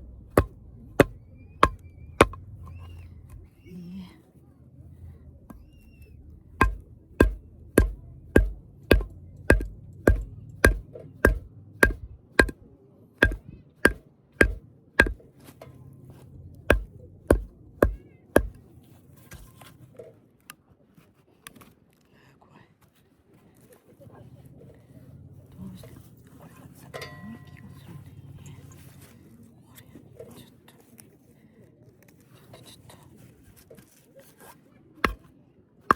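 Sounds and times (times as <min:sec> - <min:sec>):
hammer striking metal: 0:00.3 - 0:02.4, 0:06.6 - 0:12.6, 0:13.2 - 0:15.2, 0:16.7 - 0:18.6.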